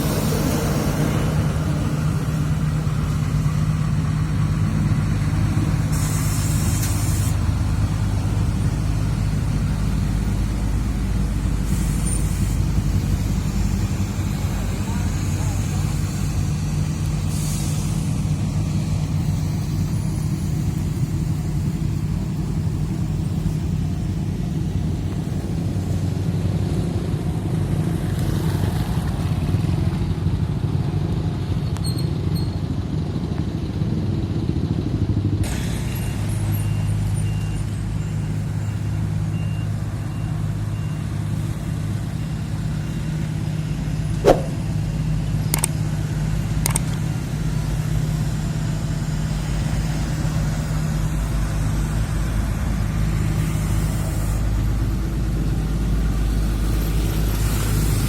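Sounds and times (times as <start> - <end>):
diesel paving machinery running: 0.0 - 58.0
short sharp squeak: 31.8 - 32.6, 44.2 - 44.8.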